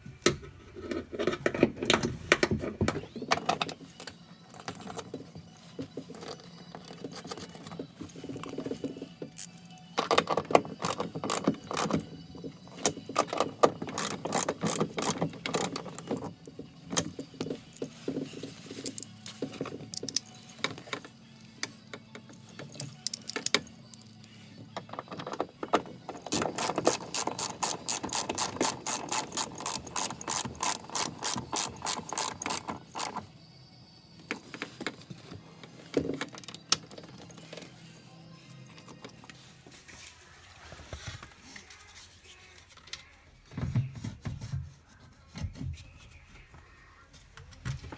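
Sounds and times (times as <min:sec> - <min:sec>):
ratchet wrench clicking: 0:26.3 - 0:33.2.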